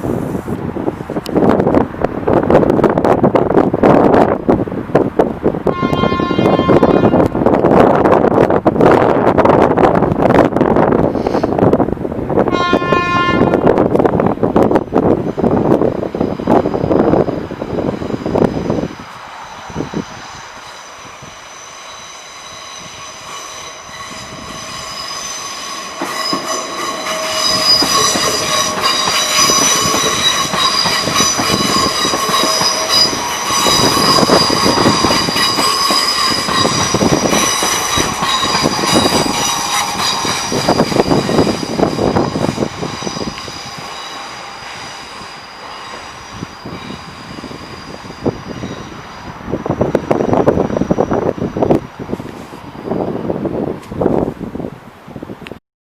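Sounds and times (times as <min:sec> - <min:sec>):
train rattling over rails: 0:00.0 - 0:54.8
train wheels squealing: 0:16.2 - 0:51.7.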